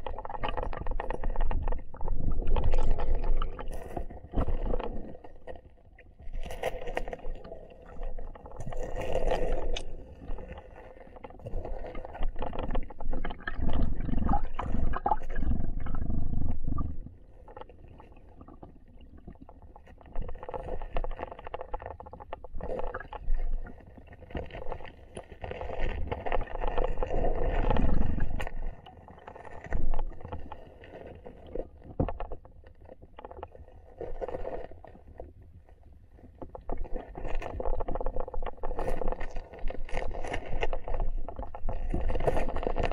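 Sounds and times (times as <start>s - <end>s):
muffled underwater river current: 0.0s - 42.9s.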